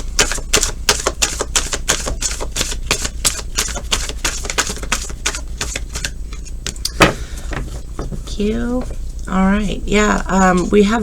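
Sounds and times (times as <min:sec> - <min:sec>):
cards shuffling: 0:00.2 - 0:07.9.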